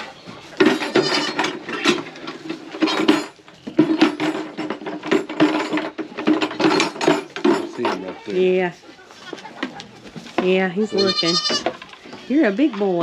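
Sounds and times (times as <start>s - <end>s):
metal feeder clanking: 0.4s - 8.6s.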